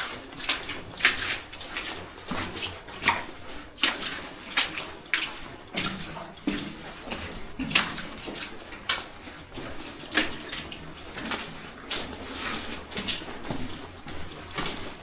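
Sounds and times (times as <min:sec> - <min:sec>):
footsteps crunching on rubble: 0:00.0 - 0:15.0.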